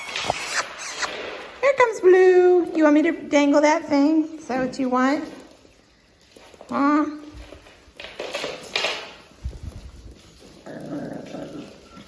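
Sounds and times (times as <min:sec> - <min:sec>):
puppies making small noises: 0:00.0 - 0:03.3, 0:06.4 - 0:12.0.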